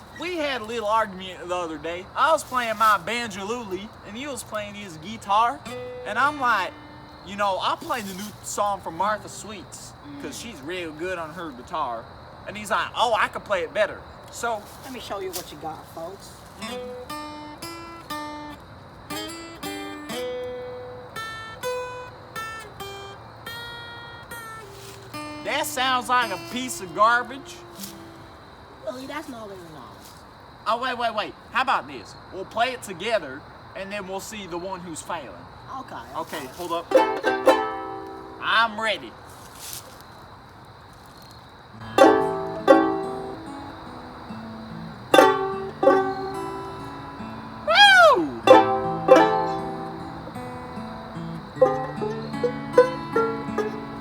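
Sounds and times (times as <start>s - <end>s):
acoustic guitar picking melody: 0.0s - 11.7s, 16.4s - 29.9s, 36.7s - 38.8s, 41.8s - 54.0s
banjo ukulele strummed chords: 36.9s - 38.6s, 41.8s - 47.7s, 48.3s - 54.0s.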